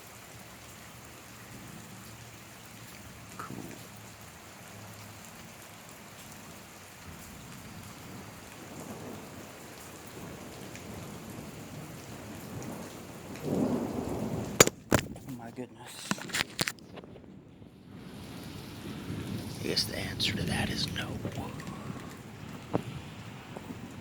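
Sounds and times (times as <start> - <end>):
steady rain falling: 0.0 - 14.6, 15.3 - 24.0
thunder rumble and crack: 10.1 - 15.3, 16.8 - 19.6.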